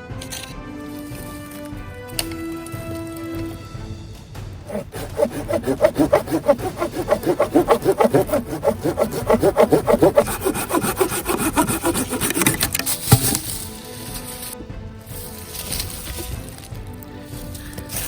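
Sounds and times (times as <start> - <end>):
hand saw cutting wood: 4.7 - 14.5.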